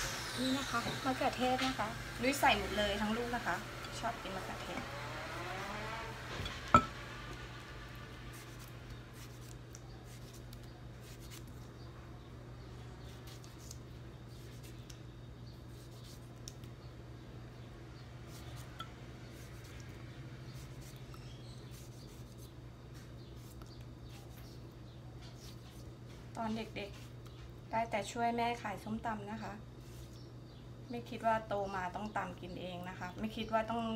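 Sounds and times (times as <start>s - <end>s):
steady low hum: 0.0s - 33.9s
knife slicing tomato: 8.3s - 11.7s, 13.0s - 15.0s, 15.6s - 16.7s, 18.2s - 24.6s.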